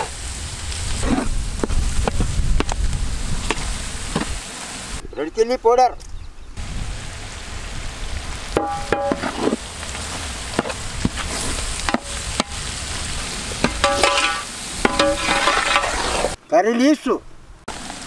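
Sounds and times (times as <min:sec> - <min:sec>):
masala sizzling in a metal pot: 0:06.6 - 0:16.4, 0:17.7 - 0:18.0
spoon knocking and scraping pot: 0:13.6 - 0:16.0.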